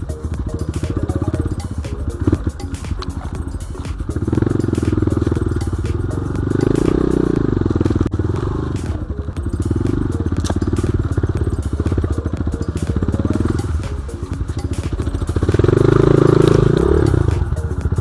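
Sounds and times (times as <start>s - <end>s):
dirt bike engine revving: 4.0s - 13.8s, 14.8s - 18.0s.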